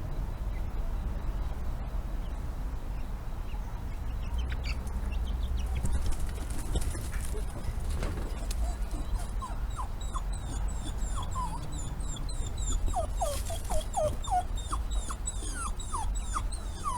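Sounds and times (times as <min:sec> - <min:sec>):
dog whimpering: 0:06.9 - 0:16.9.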